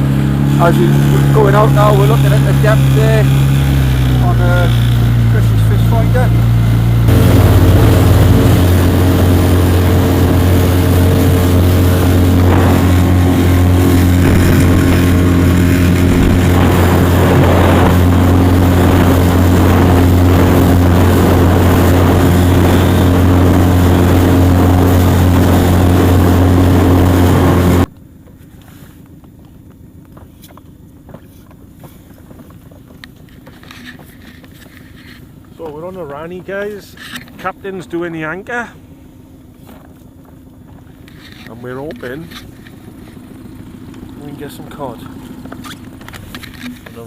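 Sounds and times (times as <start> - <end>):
water noise: 0.0 - 27.9
outboard motor running: 0.0 - 47.0
wind: 0.0 - 47.0.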